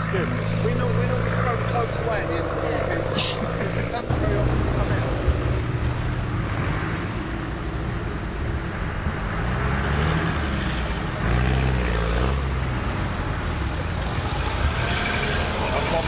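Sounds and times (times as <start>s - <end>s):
off-road engine running: 0.0s - 16.0s.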